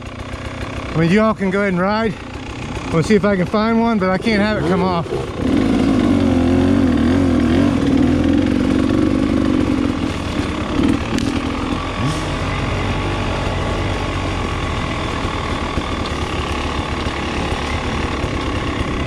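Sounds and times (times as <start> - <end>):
motorcycle engine chugging: 0.0 - 19.0.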